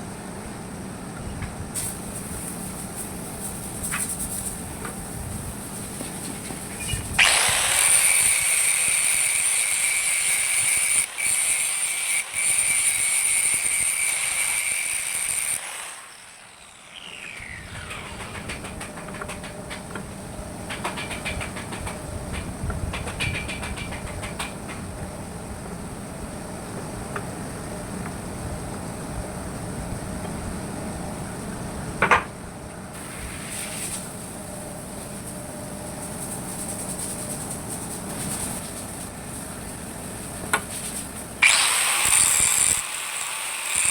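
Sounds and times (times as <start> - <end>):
power grinder whining: 6.8 - 20.0, 41.4 - 43.9
steady running noise: 16.5 - 31.2.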